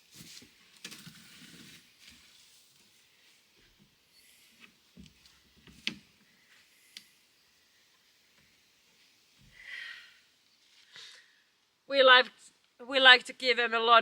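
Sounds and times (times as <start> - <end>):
short hissing rustle: 0.3 - 7.4.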